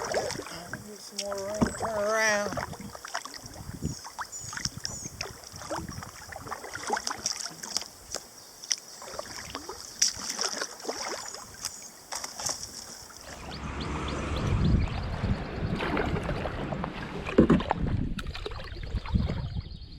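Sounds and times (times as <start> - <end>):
paddle strokes splashing water: 0.0 - 19.5.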